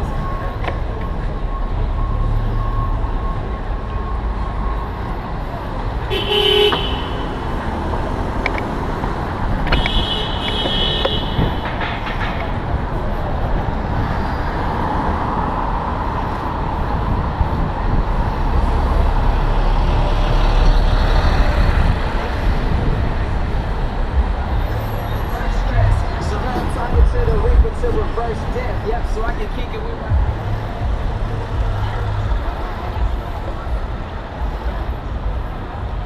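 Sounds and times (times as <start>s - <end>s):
street traffic: 0.0s - 36.0s
vehicle horns honking: 6.0s - 7.6s, 9.6s - 11.7s.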